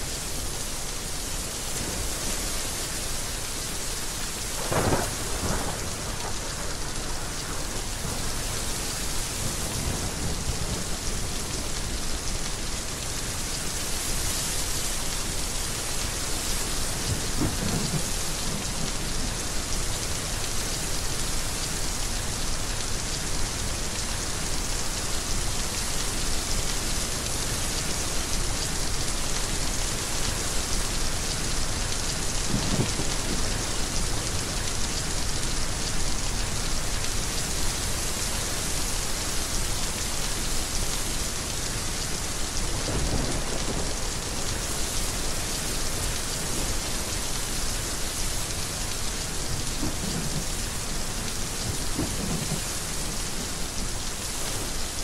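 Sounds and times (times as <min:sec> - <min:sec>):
heavy rain: 0:00.0 - 0:55.0
thunder rumbling: 0:04.4 - 0:10.9, 0:17.1 - 0:18.9, 0:32.5 - 0:33.7, 0:49.5 - 0:50.6, 0:51.6 - 0:53.5.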